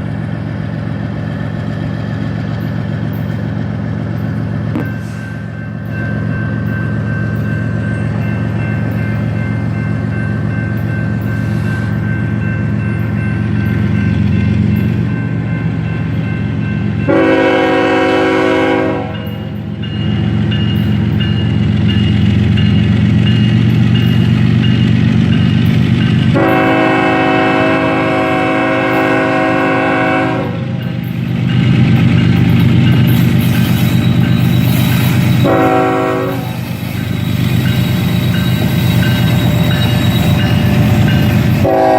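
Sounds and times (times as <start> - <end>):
diesel locomotive running: 0.0 - 41.9
locomotive air horn blasts: 17.1 - 19.3, 26.3 - 30.6, 35.4 - 36.6, 41.6 - 41.9.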